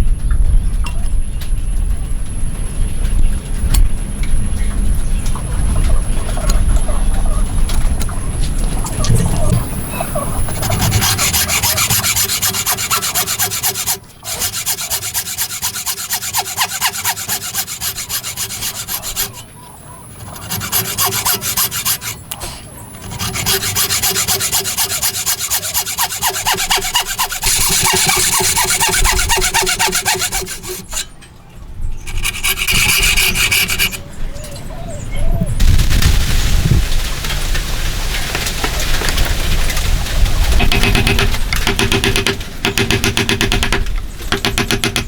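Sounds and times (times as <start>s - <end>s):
hand tool working wood: 9.5s - 31.1s, 32.1s - 34.0s, 40.6s - 45.0s.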